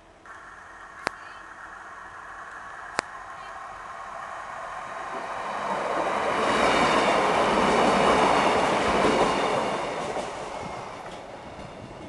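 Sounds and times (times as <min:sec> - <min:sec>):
train passing: 0:00.0 - 0:12.0.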